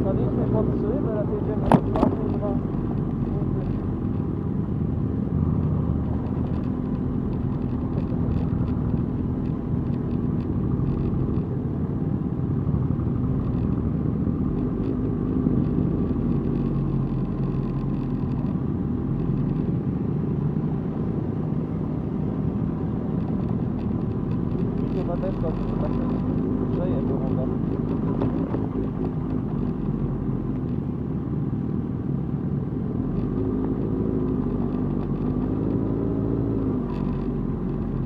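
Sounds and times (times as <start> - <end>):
motorcycle engines rumbling: 0.0 - 38.0.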